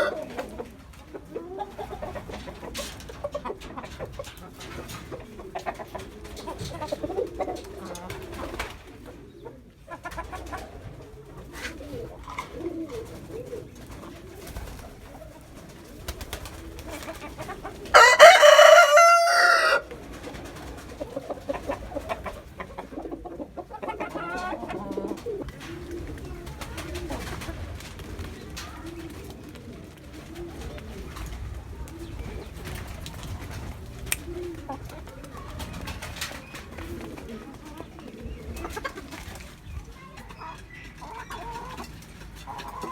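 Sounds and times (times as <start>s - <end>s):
rooster crowing: 0.0s - 0.3s, 17.9s - 19.9s
chickens clucking: 0.0s - 42.9s
pigeons cooing: 0.0s - 42.9s.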